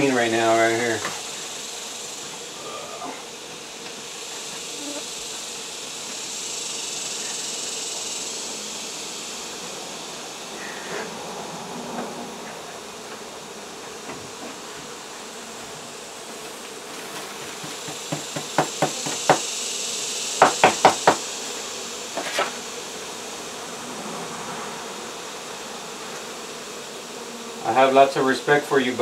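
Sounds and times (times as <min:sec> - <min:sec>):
bees buzzing: 0:00.0 - 0:29.0
sharp knocks and taps: 0:17.4 - 0:19.4, 0:20.4 - 0:21.2.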